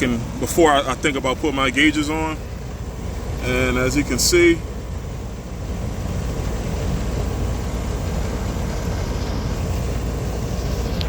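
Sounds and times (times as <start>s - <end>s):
air conditioner unit running: 0.0s - 11.0s.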